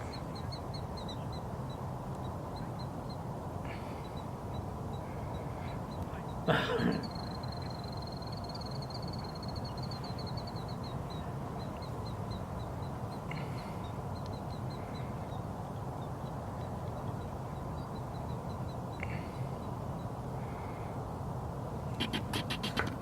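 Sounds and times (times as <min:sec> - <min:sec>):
outdoor background hum: 0:00.0 - 0:23.0
bird harsh call: 0:06.5 - 0:07.8.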